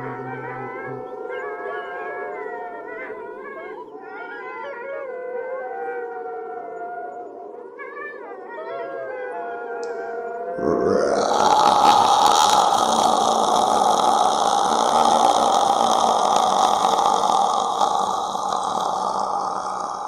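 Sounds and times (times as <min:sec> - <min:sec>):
eerie wavering howls: 0:00.0 - 0:01.9, 0:10.6 - 0:20.0.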